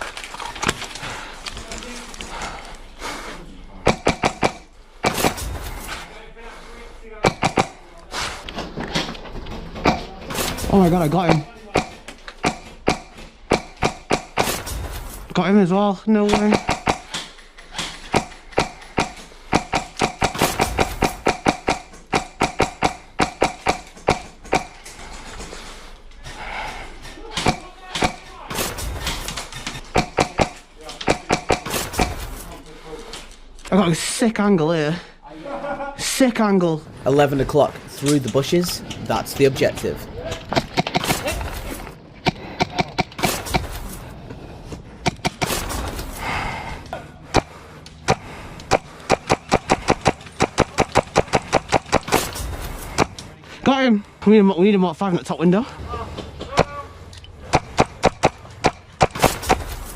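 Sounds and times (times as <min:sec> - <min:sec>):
airsoft gun shots: 0:57.5 - 0:59.8.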